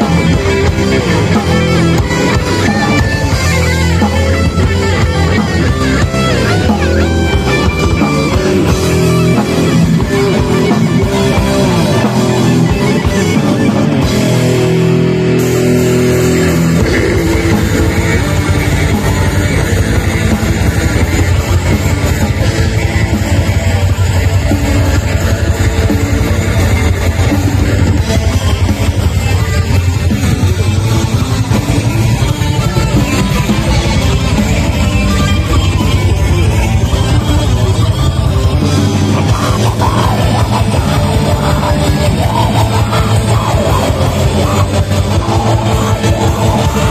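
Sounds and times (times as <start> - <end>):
fast drumming: 0.0 - 46.9
heavy bass: 0.0 - 46.9
melodic electric guitar: 0.0 - 46.9
metal band playing loud: 0.0 - 46.9.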